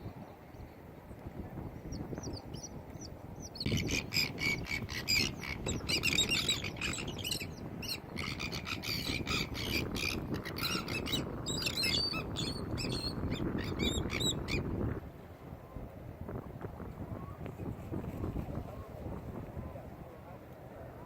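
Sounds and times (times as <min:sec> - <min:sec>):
flock of birds calling: 0:03.5 - 0:14.6.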